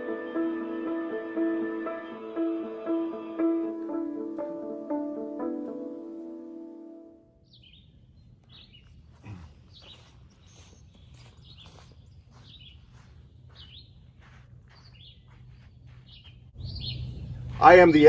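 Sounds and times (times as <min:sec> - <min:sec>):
songbirds chirping: 0:02.0 - 0:18.0
low outdoor hum: 0:07.2 - 0:18.0.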